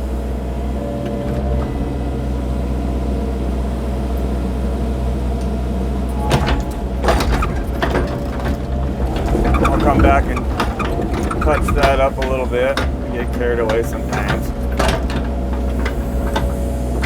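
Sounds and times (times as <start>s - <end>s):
excavator diesel engine running: 0.0s - 17.0s
sharp knocks and clanks: 6.1s - 17.0s.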